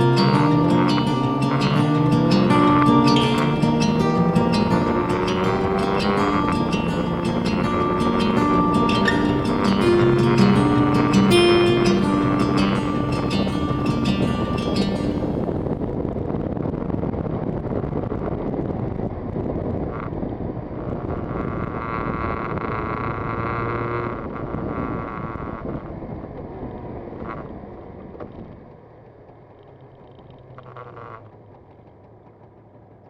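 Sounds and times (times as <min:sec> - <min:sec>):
wind noise on microphone: 0:00.0 - 0:28.7
two-stroke motorcycle engine: 0:00.3 - 0:13.0, 0:19.4 - 0:33.0.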